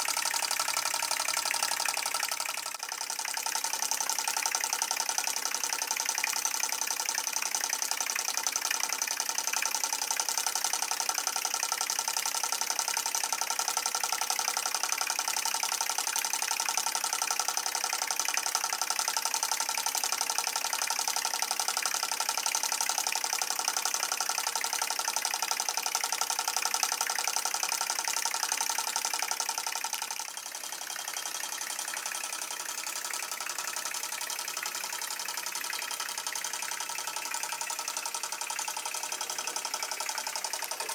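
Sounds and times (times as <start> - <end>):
steam engine rapid beat: 0.0 - 40.9.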